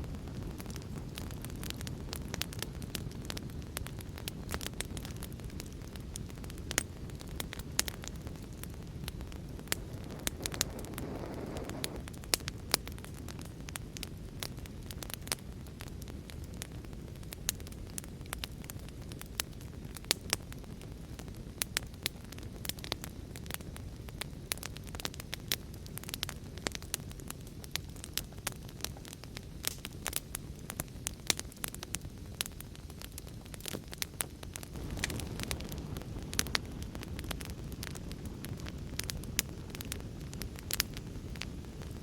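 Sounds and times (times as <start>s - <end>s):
wood fire crackling: 0.0s - 42.0s
rain: 34.7s - 39.2s.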